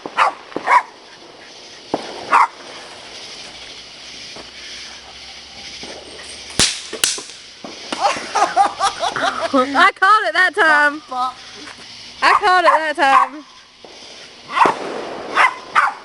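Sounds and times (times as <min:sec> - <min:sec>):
firework hissing: 0:00.0 - 0:16.0
firework popping cracks: 0:00.0 - 0:16.0
dog barking: 0:00.2 - 0:01.0, 0:02.3 - 0:02.6, 0:12.3 - 0:13.4, 0:14.5 - 0:16.0.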